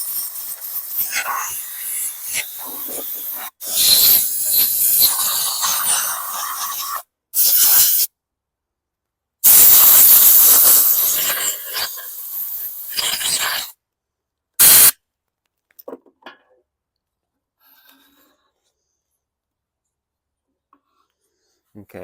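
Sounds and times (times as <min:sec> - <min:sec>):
hissing spray bursts: 0:00.0 - 0:08.1, 0:09.4 - 0:13.8, 0:14.6 - 0:15.0.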